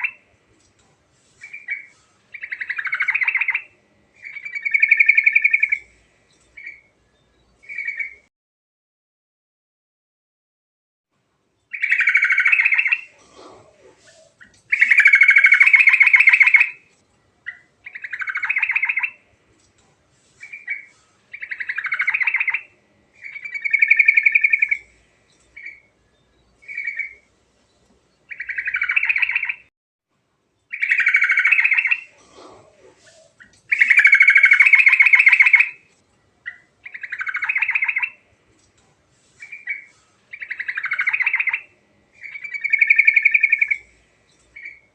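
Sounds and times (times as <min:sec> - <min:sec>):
bulbul singing rattling phrases: 0:01.4 - 0:06.9, 0:11.7 - 0:16.8, 0:17.5 - 0:19.2, 0:20.4 - 0:25.9, 0:30.7 - 0:35.8, 0:36.4 - 0:38.3, 0:39.4 - 0:44.9.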